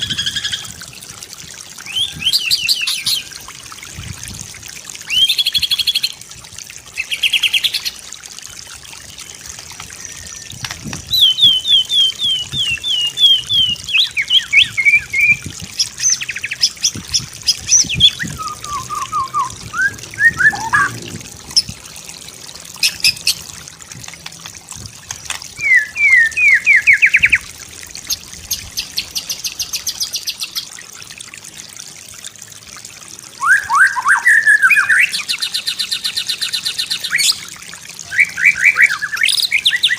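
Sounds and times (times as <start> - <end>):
songbird singing whistles and trills: 1.8 - 3.4, 10.0 - 16.6, 17.5 - 21.0, 25.6 - 27.4, 33.4 - 37.4, 38.0 - 39.9.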